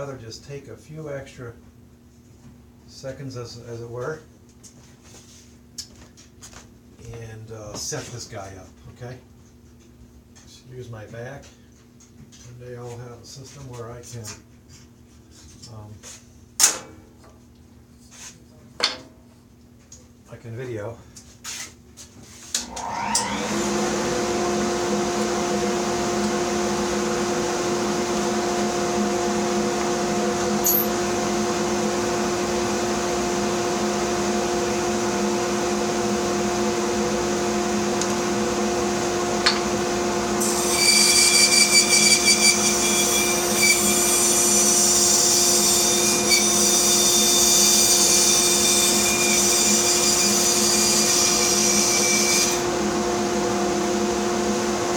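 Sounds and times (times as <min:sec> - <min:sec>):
bandsaw running: 0:22.6 - 0:54.9
bandsaw blade cutting wood: 0:30.5 - 0:31.0, 0:40.4 - 0:52.6.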